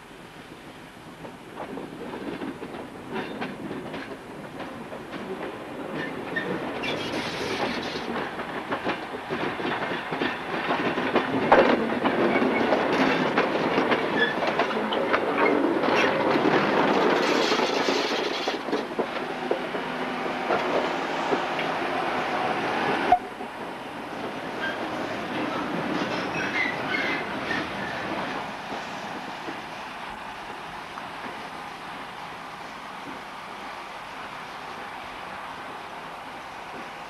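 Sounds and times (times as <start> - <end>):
train rattle: 0.5 - 37.0
train wheels clacking on rails: 0.6 - 33.4.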